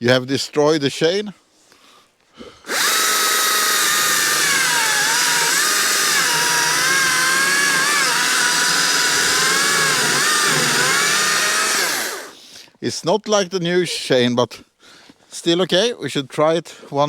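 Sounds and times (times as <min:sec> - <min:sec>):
chainsaw cutting at full throttle: 0:02.7 - 0:12.4.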